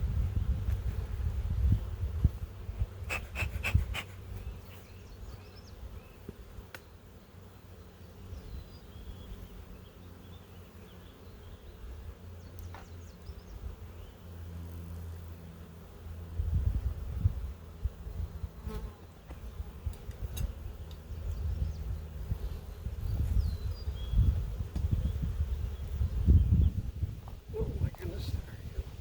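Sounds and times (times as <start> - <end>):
honeybees buzzing: 0.0 - 29.0.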